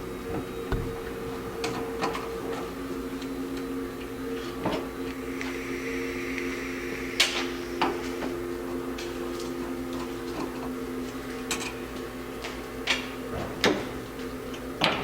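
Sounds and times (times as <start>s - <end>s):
steady tonal hum: 0.0s - 12.4s.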